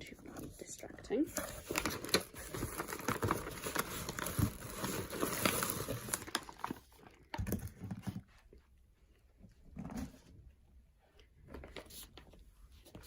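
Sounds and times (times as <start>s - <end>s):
packaging crinkling and rustling: 0.3s - 8.3s.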